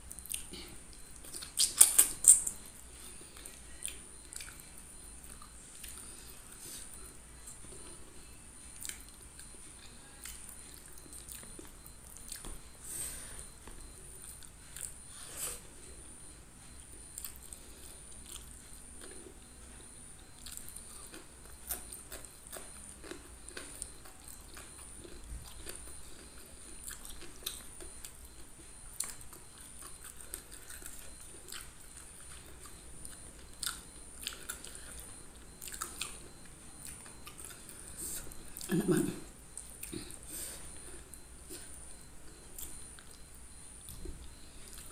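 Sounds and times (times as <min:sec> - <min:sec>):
person chewing food: 0:00.0 - 0:44.9
wet mouth clicks and smacks: 0:01.2 - 0:02.6.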